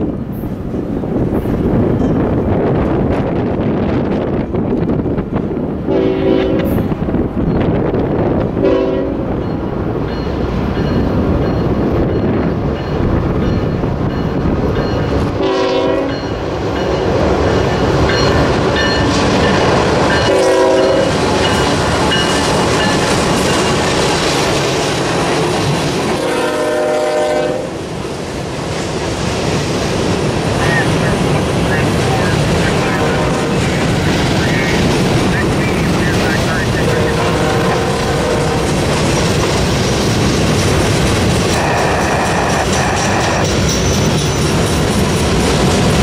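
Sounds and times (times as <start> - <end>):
train rumble and wheel clatter: 0.0 - 46.0
locomotive air horn blasts: 5.9 - 6.8, 8.6 - 9.3, 15.4 - 16.2, 20.2 - 21.2, 26.2 - 27.8, 32.7 - 33.5, 36.9 - 38.6, 41.6 - 43.4.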